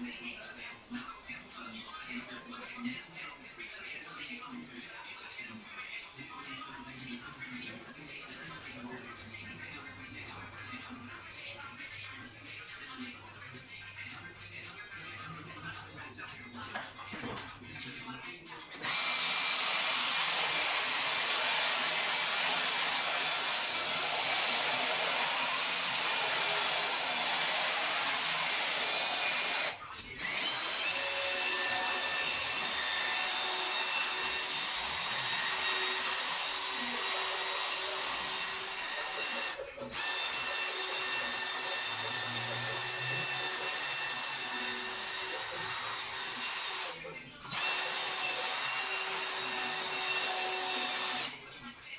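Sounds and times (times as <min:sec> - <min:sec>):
small electric motor whining: 0:18.8 - 0:51.9.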